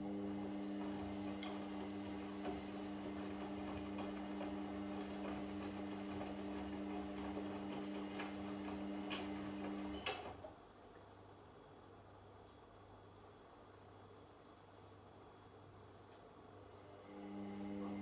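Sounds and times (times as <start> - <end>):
washing machine motor humming: 0.0 - 10.5, 16.9 - 18.0.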